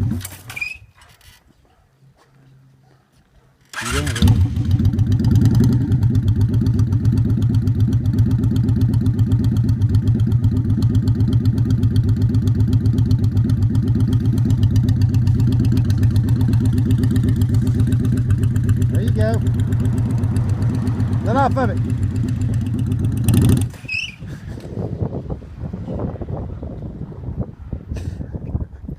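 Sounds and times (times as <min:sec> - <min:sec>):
motorcycle engine running: 0:03.8 - 0:23.9.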